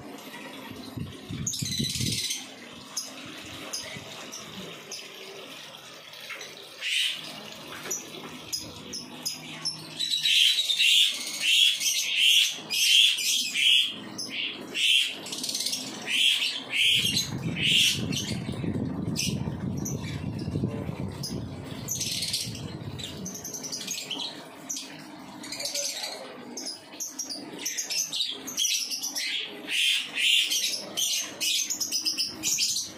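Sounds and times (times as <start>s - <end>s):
low rumbling noise: 17.2s - 23.4s.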